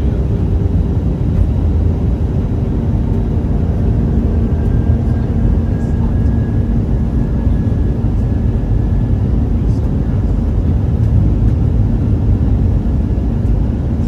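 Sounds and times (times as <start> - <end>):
jet engine rumble: 0.0 - 14.0.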